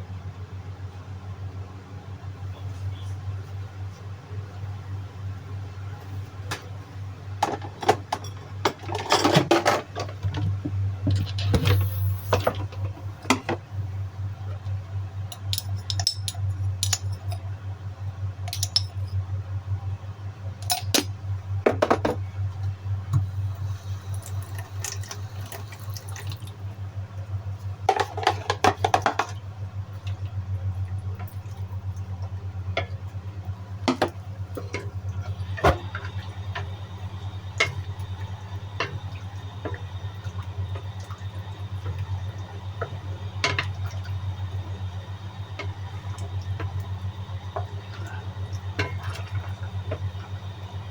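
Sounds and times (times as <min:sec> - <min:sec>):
steady low hum: 0:00.0 - 0:50.9
pots and utensils clinking: 0:15.4 - 0:17.4
running or splashing water: 0:24.0 - 0:26.7, 0:37.2 - 0:50.9.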